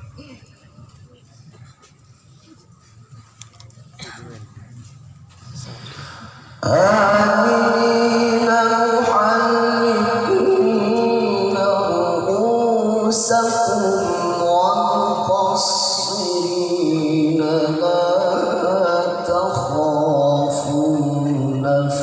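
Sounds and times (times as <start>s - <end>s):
man chanting melodically: 6.6s - 22.0s.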